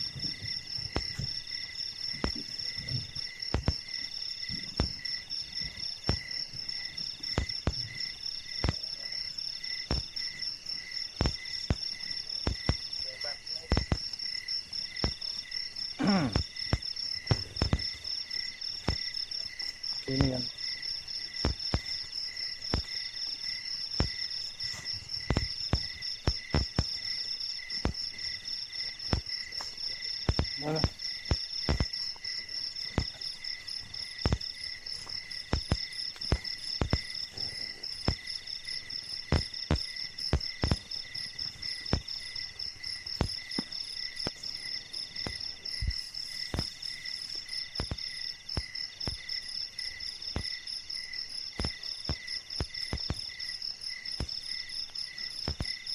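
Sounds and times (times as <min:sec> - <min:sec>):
crickets trilling: 0:00.0 - 0:55.9
insects chirping: 0:00.0 - 0:55.9
short knocks or thumps: 0:00.2 - 0:01.4, 0:02.1 - 0:06.4, 0:09.9 - 0:10.2, 0:11.2 - 0:12.9, 0:13.7 - 0:14.1, 0:16.0 - 0:18.0, 0:20.1 - 0:20.5, 0:24.0 - 0:27.0, 0:29.1 - 0:32.0, 0:34.2 - 0:38.3, 0:39.3 - 0:40.9.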